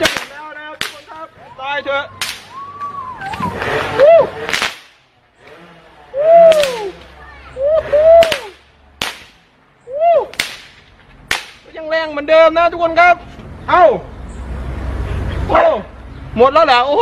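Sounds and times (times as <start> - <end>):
firework bangs: 0.0 - 1.2, 2.2 - 5.1, 6.4 - 7.1, 8.2 - 9.5, 10.3 - 11.8
firework whistle: 2.2 - 4.3.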